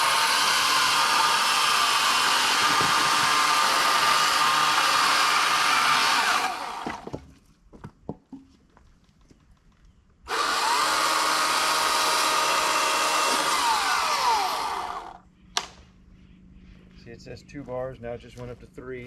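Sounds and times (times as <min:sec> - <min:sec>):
electric chainsaw motor running: 0:00.0 - 0:07.0, 0:10.3 - 0:15.2.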